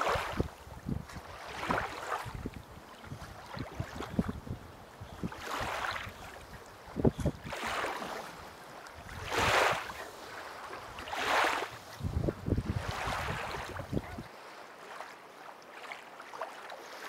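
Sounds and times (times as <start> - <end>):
wind buffeting microphone: 0.0 - 8.2, 9.0 - 14.3
water splashing and sloshing: 0.0 - 17.0.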